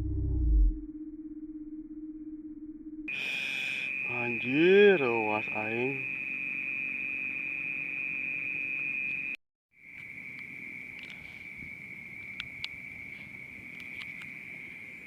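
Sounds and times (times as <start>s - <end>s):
crickets trilling: 3.1s - 15.0s.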